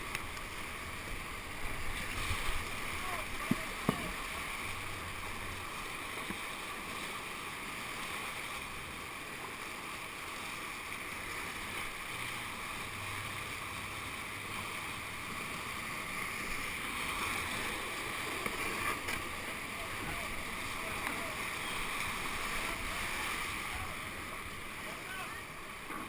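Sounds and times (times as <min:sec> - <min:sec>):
whitewater rapids rushing: 0:00.0 - 0:26.0.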